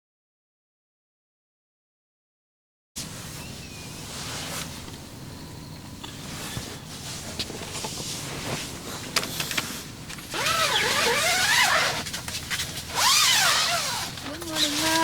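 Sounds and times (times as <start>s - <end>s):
tent zipper pulled: 8.2s - 15.0s.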